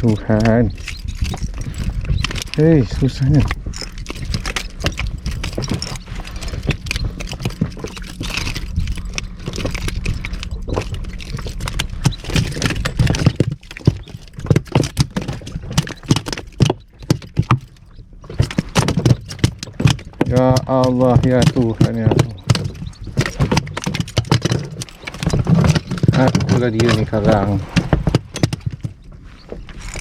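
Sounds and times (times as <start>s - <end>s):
low rumble: 0.0s - 16.6s
knocks taps and rattles: 0.0s - 30.0s.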